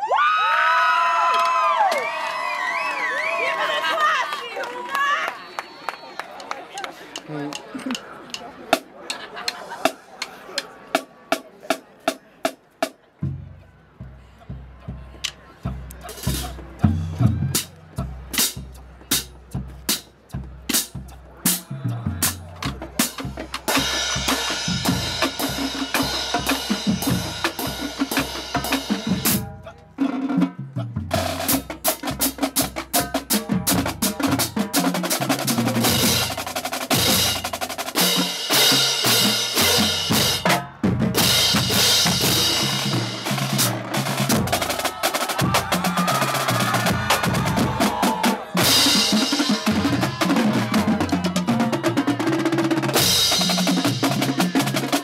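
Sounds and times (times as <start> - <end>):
bass drums at different pitches: 13.2 - 29.6, 39.2 - 52.2
snare drum rolls and rimshots: 18.4 - 55.0.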